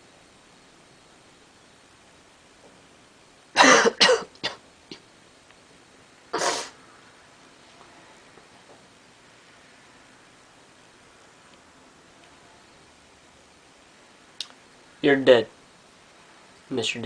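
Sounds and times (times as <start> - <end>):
person coughing: 3.6 - 4.6, 6.4 - 6.8.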